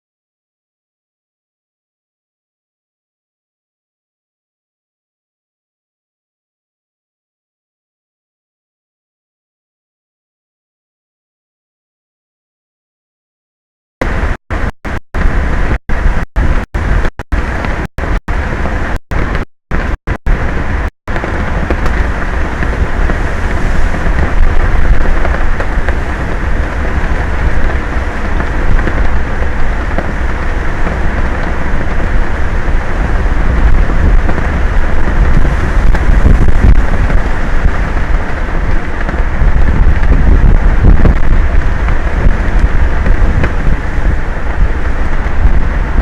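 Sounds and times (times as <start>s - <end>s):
wind on microphone: 14.0s - 46.0s.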